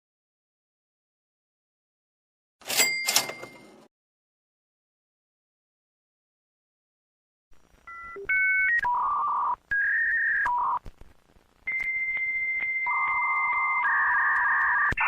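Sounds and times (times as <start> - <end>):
high steady modem tone: 7.5 - 15.0
warbling modem handshake tones: 11.6 - 15.0.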